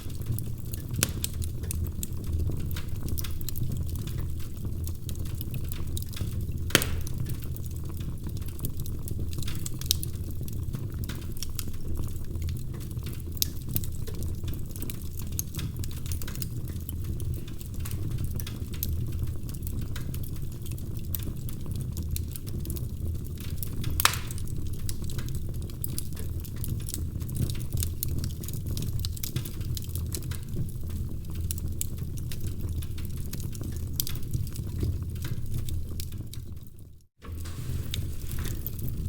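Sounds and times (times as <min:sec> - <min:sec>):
fire crackling and popping: 0:00.0 - 0:39.0.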